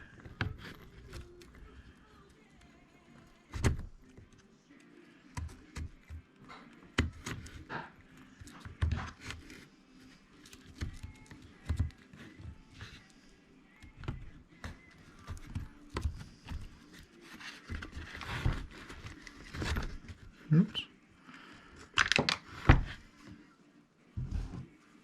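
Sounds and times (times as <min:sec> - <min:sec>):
clicks and knocks of small parts: 0:21.9 - 0:22.5.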